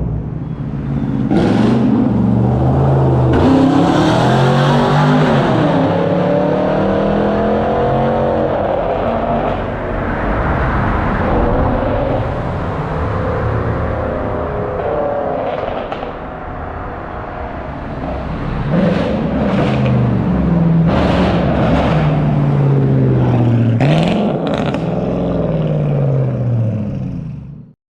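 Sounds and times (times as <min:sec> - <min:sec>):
car engine revving: 0:00.0 - 0:27.7.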